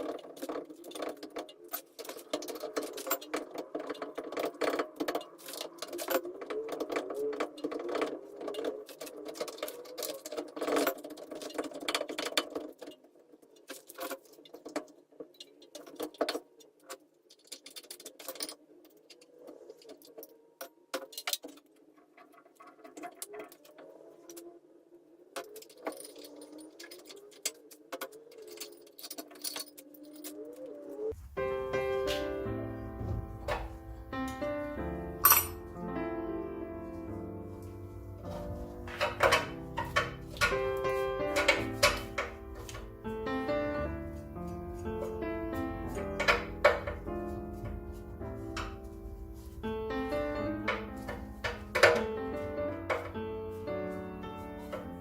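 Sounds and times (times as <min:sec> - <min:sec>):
metal brake parts clinking: 0:35.2 - 0:35.6, 0:38.3 - 0:43.0, 0:45.9 - 0:47.9.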